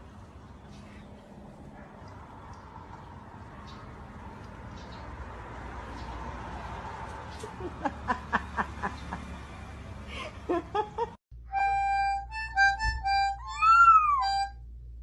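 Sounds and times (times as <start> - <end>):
simple tune of held notes: 11.4 - 14.5
short squeaky calls: 13.4 - 14.4.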